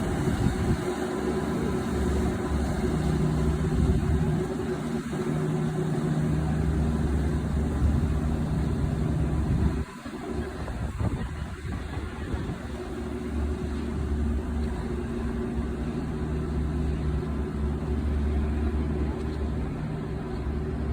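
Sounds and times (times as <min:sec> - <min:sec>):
ferry engines droning: 0:00.0 - 0:20.9.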